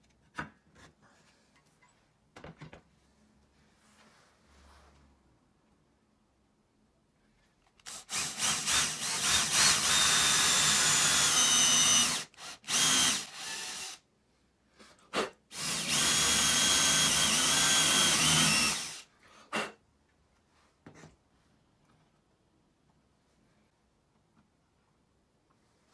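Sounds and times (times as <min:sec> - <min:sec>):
cordless drill whirring: 0:07.8 - 0:14.0, 0:15.5 - 0:19.1.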